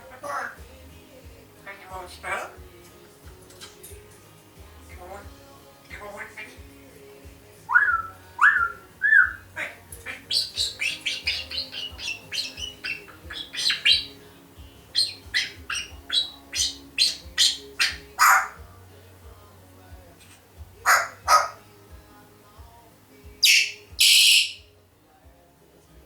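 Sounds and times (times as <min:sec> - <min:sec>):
parrot squawk: 0:00.1 - 0:00.6, 0:01.7 - 0:02.6, 0:07.7 - 0:14.2, 0:14.9 - 0:18.6, 0:20.8 - 0:21.6, 0:23.4 - 0:24.6
parrot whistles: 0:07.7 - 0:09.4, 0:23.4 - 0:24.6.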